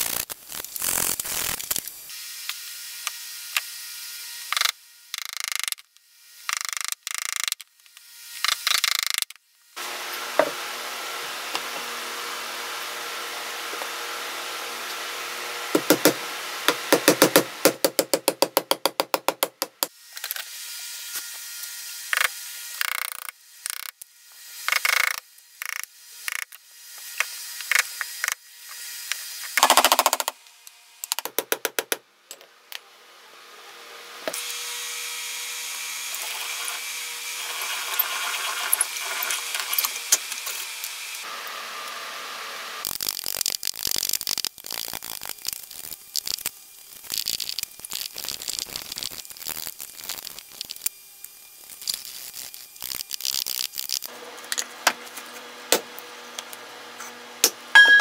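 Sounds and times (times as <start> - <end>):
knife cutting and scraping wood: 42.8 - 57.6.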